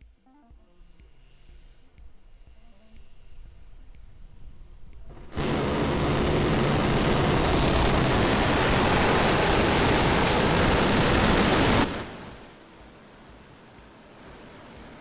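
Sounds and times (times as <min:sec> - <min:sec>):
rocket engines firing: 0:05.1 - 0:15.0.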